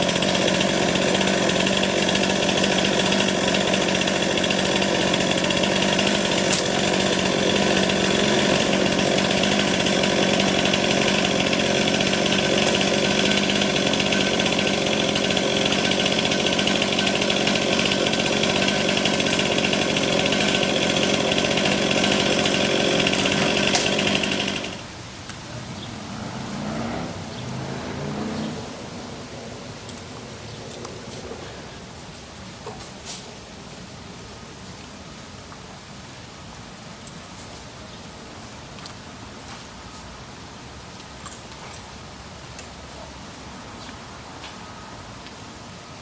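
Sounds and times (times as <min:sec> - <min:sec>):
chainsaw cutting tree: 0:00.0 - 0:24.9.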